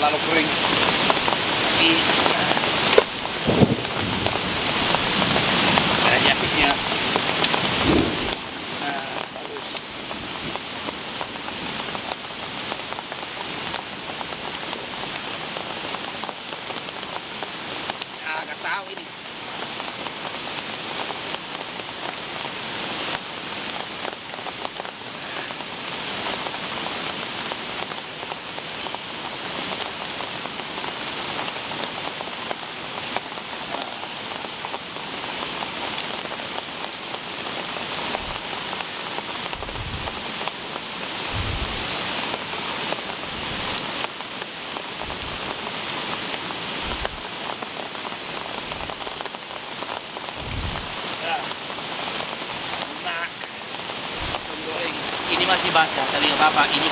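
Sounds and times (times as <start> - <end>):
heavy rain falling: 0.0 - 56.9
dull low thumps: 3.0 - 5.8, 6.4 - 8.6, 38.2 - 38.4, 39.5 - 40.2, 41.3 - 41.9, 45.0 - 45.5, 46.8 - 47.3, 50.3 - 51.0.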